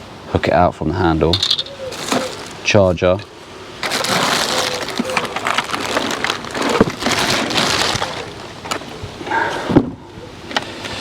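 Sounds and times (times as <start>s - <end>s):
plastic packaging crinkling: 1.4s - 2.7s, 3.8s - 8.8s.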